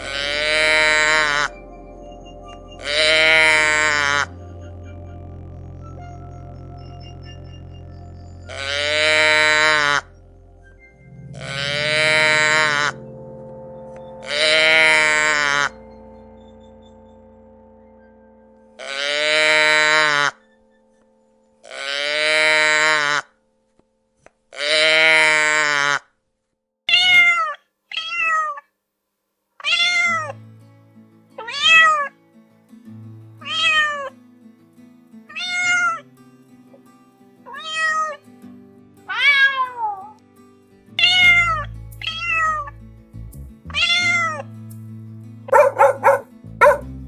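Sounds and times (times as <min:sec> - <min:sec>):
long low animal call: 0:00.0 - 0:01.6, 0:02.8 - 0:05.2, 0:08.5 - 0:10.1, 0:11.3 - 0:13.0
cat meowing: 0:26.9 - 0:28.6, 0:29.6 - 0:30.4, 0:31.4 - 0:32.1, 0:33.4 - 0:34.1, 0:35.3 - 0:36.0, 0:37.5 - 0:38.2, 0:39.1 - 0:40.2, 0:41.0 - 0:42.7, 0:43.7 - 0:44.4
dog barking: 0:45.5 - 0:47.0.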